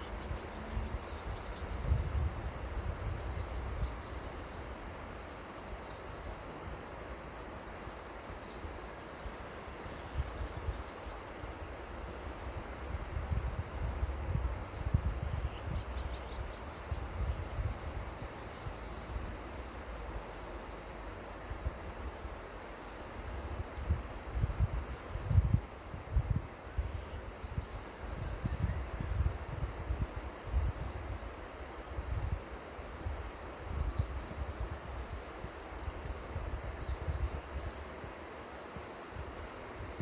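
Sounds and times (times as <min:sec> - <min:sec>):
wind buffeting microphone: 0:00.0 - 0:04.8, 0:12.2 - 0:19.4, 0:23.2 - 0:31.3, 0:31.9 - 0:37.9.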